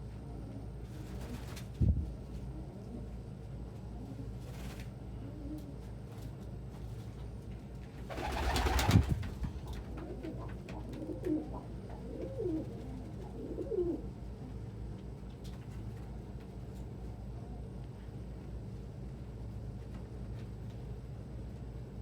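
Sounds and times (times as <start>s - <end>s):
pigeon cooing: 9.6s - 14.2s.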